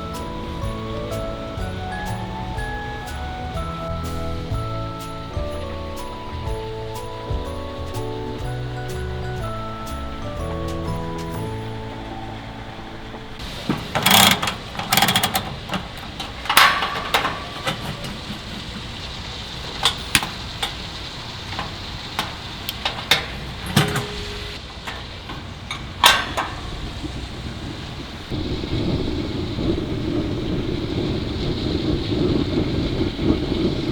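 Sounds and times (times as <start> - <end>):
wind noise: 0.0 - 33.9
camping gear clattering: 4.7 - 28.4.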